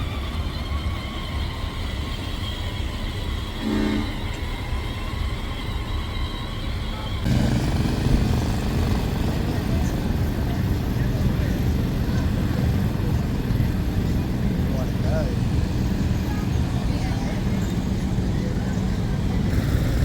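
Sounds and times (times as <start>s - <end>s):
short horn toot: 3.6s - 4.4s
steady low rumble: 7.3s - 20.0s.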